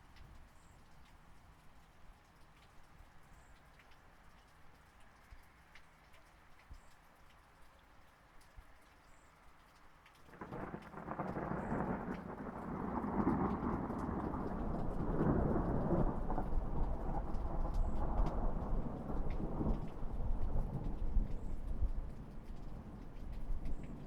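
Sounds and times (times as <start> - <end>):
raindrop ticks: 0.0 - 24.0
thunder rumbling: 10.3 - 24.0.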